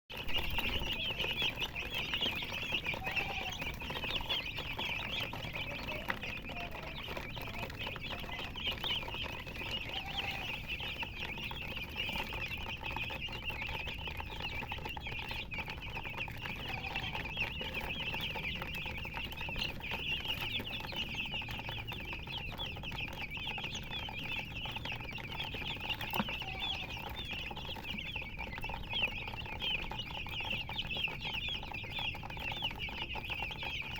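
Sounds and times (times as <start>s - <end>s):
baby chicks peeping: 0.1s - 33.9s
hen clucking: 0.2s - 33.9s.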